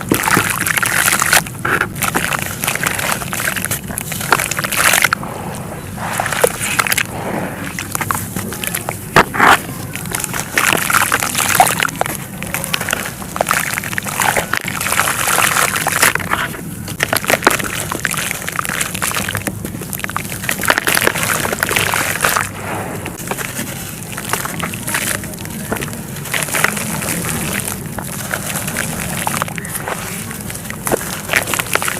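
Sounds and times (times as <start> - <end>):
dry material crumbling by hand: 7.7 - 31.9.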